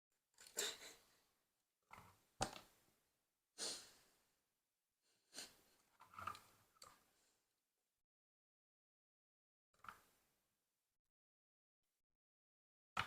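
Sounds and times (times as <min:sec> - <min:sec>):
plastic pieces rattling and clicking: 0:05.9 - 0:07.0.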